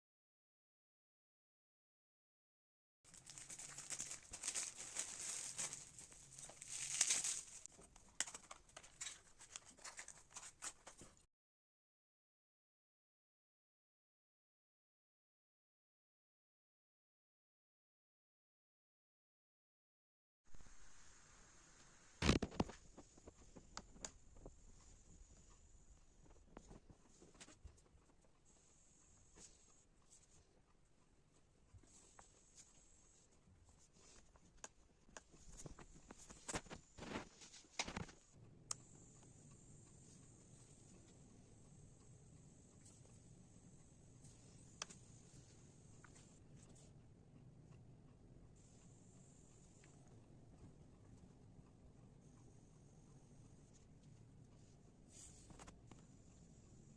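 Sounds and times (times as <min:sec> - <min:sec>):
packaging crinkling and tearing: 0:03.1 - 0:11.2
faint steady hiss: 0:20.5 - 0:34.8.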